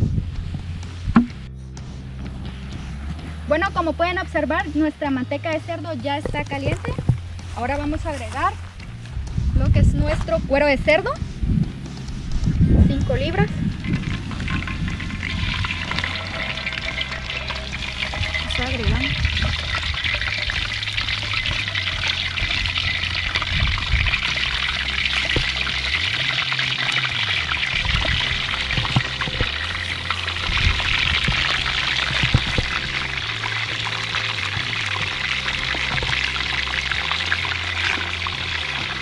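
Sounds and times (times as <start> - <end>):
pork skin sizzling in hot lard: 13.8 - 39.0.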